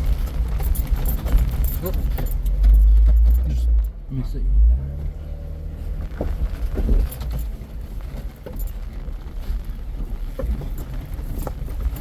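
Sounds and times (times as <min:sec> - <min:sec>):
knocks and rattles: 0:00.0 - 0:03.9, 0:06.0 - 0:09.2
vehicle rumbling over rough trail: 0:00.0 - 0:12.0.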